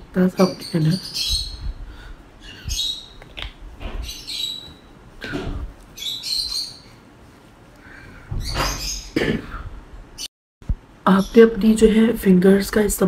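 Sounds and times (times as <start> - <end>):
bird chirping and squawking: 0.2 - 4.9, 6.0 - 7.0, 8.3 - 9.2.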